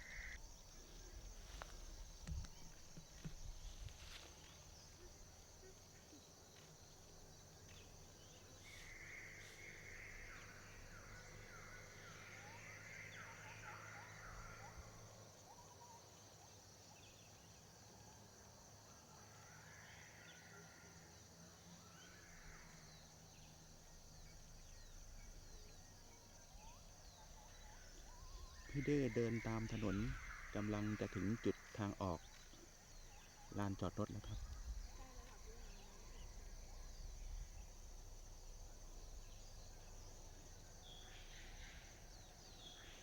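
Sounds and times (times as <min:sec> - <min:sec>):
high insect drone: 0:00.0 - 0:43.0
bird chirping: 0:21.7 - 0:43.0.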